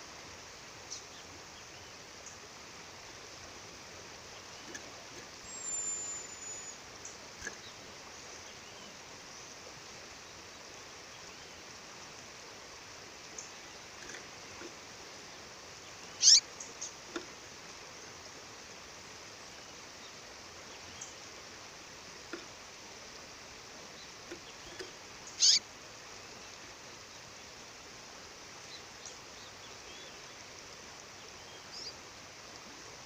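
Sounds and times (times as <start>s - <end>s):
bird chirping and whistling: 5.5s - 6.8s, 16.2s - 16.4s, 25.4s - 25.6s.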